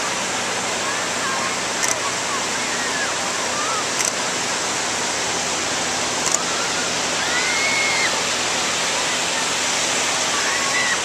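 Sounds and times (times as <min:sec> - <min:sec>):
ocean surf on beach: 0:00.0 - 0:11.0
faint high calls: 0:06.3 - 0:08.2.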